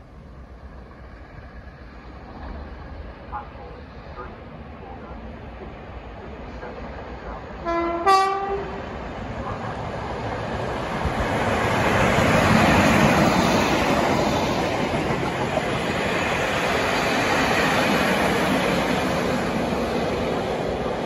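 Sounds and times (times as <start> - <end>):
train passing wheel and rail noise: 0.0 - 21.0
two-tone locomotive horn: 7.6 - 8.9.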